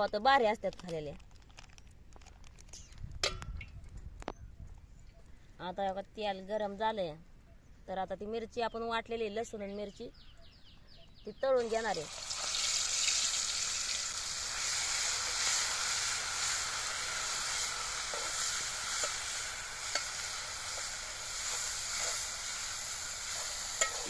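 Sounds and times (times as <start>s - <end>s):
paste sizzling in hot oil: 11.6s - 24.0s
metal spatula ticks: 18.1s - 22.3s.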